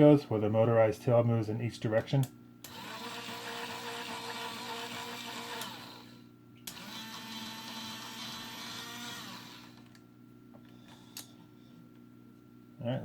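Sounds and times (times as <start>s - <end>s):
toy motor whirring: 2.7s - 9.9s.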